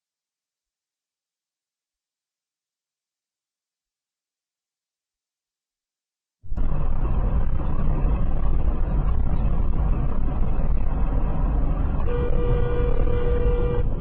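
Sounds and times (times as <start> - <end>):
vehicle rumbling on road: 6.5 - 14.0
vehicle horn steady note: 12.0 - 14.0.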